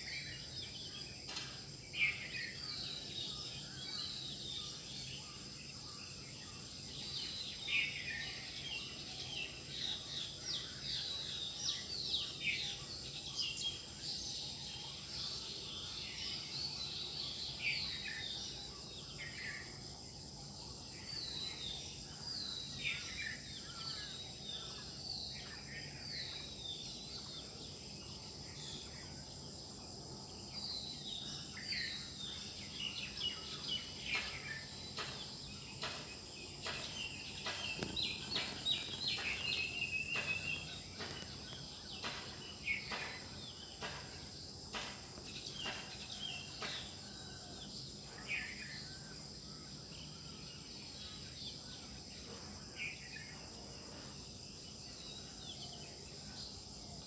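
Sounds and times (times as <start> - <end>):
birds chirping and singing: 30.6 - 52.1.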